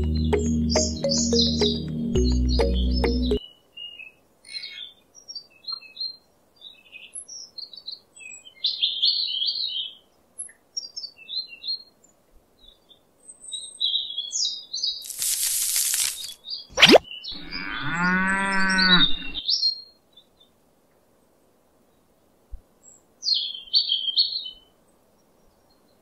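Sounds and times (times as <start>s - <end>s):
small birds chirping: 0.0s - 20.6s, 21.9s - 26.0s
burst of hiss: 15.0s - 16.4s.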